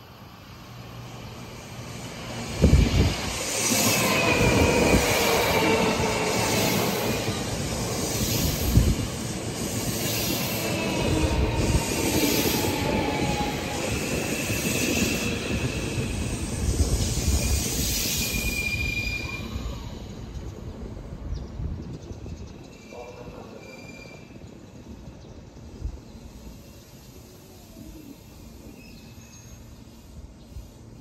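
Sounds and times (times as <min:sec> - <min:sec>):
train wheels rumbling on rails: 0:01.0 - 0:31.0
high wheel squeal: 0:10.0 - 0:20.2, 0:22.7 - 0:24.4.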